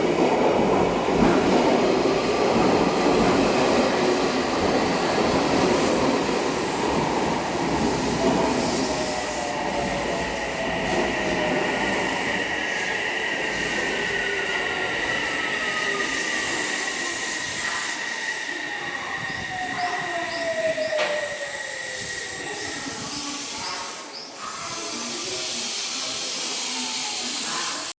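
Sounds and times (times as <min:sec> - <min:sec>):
train running noise: 0:00.0 - 0:27.9
high squeal: 0:08.7 - 0:24.1.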